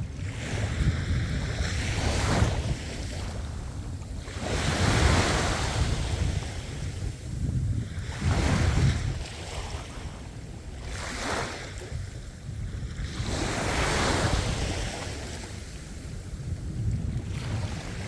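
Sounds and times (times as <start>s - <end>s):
sea waves breaking on shore: 0.0s - 18.0s
wind noise on microphone: 0.0s - 18.0s.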